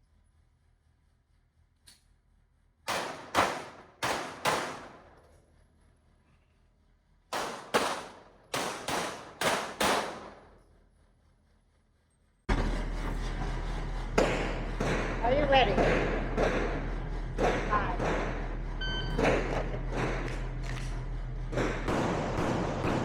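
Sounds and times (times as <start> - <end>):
pistol shots: 2.9 - 5.2, 7.3 - 10.6, 21.9 - 23.0.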